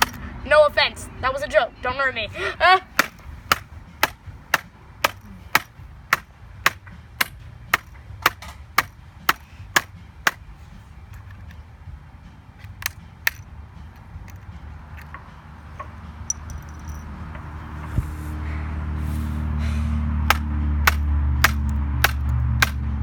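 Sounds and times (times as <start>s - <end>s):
hard strikes on a laptop: 3.0s - 10.4s, 20.3s - 22.8s.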